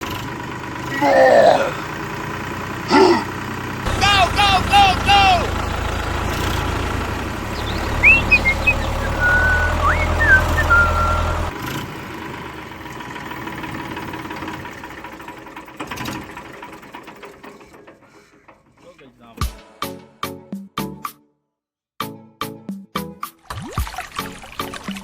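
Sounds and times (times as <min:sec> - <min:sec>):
engine rumbling: 0:00.0 - 0:19.4
short high chirps: 0:07.6 - 0:11.5.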